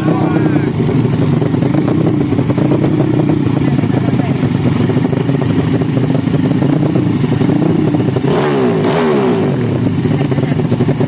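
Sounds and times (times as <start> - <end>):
engine note falling in pitch: 0.0 - 0.9
racing motorcycle engines: 0.0 - 11.0.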